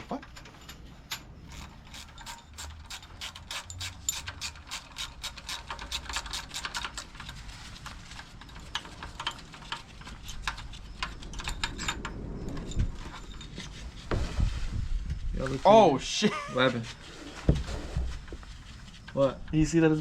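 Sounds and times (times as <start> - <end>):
ratchet wrench clicking: 1.1 - 7.4.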